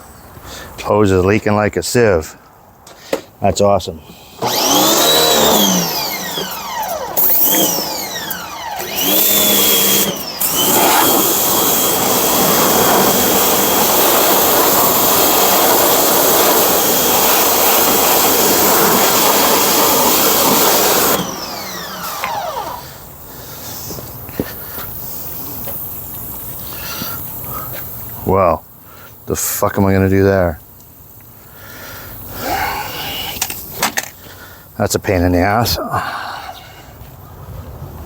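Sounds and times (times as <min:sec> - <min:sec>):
pressure washer motor and pump: 0:04.3 - 0:28.3.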